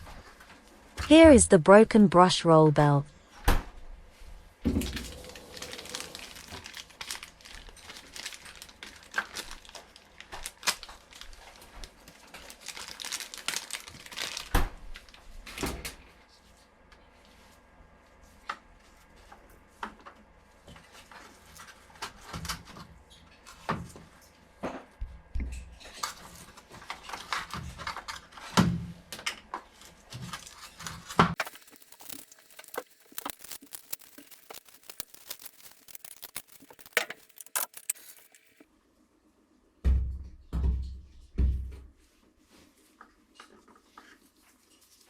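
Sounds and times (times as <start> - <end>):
plastic parts clicking and rattling: 31.4 - 38.6.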